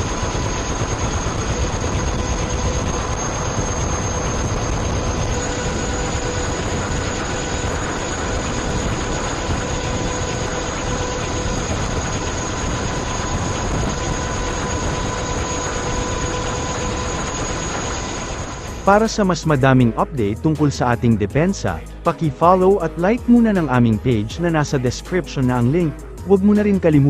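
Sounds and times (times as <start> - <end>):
faint steady whines: 0.0 - 19.0
aircraft engine rushing: 0.0 - 27.0.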